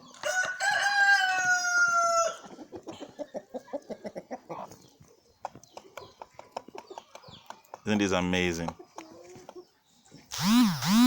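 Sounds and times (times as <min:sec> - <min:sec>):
rooster crowing: 0:00.2 - 0:02.4
chickens clucking softly: 0:01.2 - 0:10.3.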